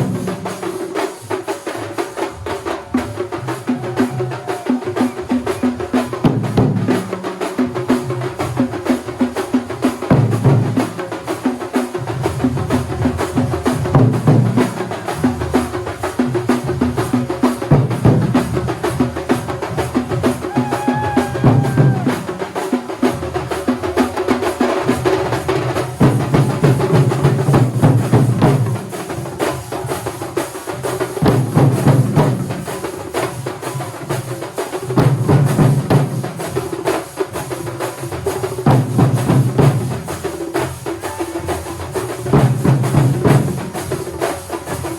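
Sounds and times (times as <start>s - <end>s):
percussion ensemble drumming: 0.0s - 44.9s
heavy bass drum: 16.7s - 22.4s.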